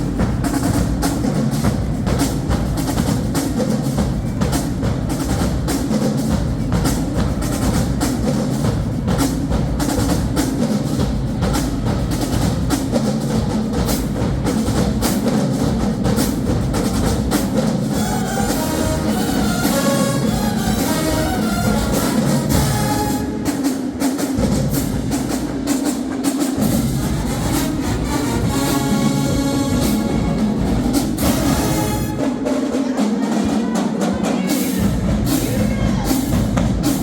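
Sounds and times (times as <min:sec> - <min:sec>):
snare and bass drums cadence: 0:00.0 - 0:32.5
marching band horns: 0:17.9 - 0:23.9, 0:26.6 - 0:33.8.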